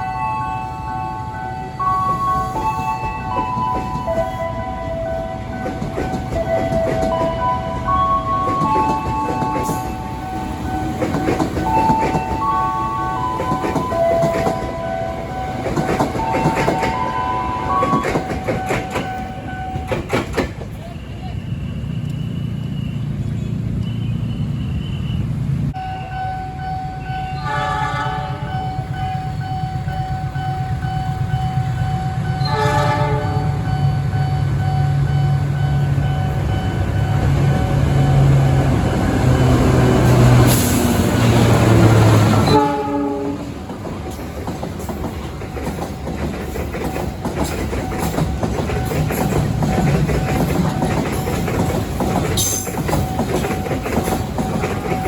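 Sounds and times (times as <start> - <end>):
train engine and wheels rumble: 0.0 - 55.0
train horn blasts: 27.2 - 29.1, 32.2 - 33.7, 39.3 - 43.6.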